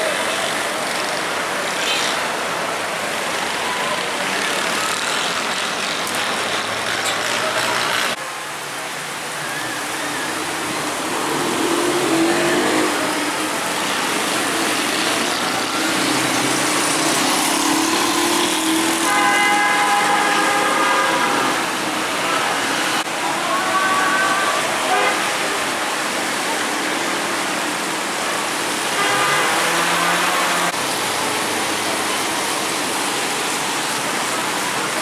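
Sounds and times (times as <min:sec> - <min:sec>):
vehicle engine: 0:00.0 - 0:08.2, 0:10.0 - 0:23.1
rain and wet tyres hissing: 0:00.0 - 0:35.0
vehicle horn: 0:18.8 - 0:21.8, 0:23.4 - 0:25.6, 0:28.9 - 0:30.8.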